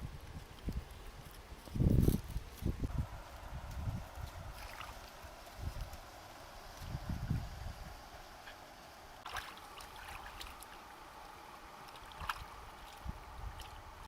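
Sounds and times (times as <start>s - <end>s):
water sloshing and trickling: 4.2s - 7.4s, 8.4s - 14.0s
light splashes or clicks: 9.2s - 13.8s.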